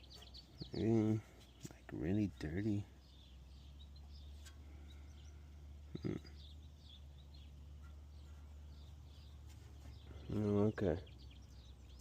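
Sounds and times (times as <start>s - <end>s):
faint birds chirping: 0.0s - 12.0s
steady low hum: 0.0s - 12.0s
short grunt: 5.9s - 6.4s.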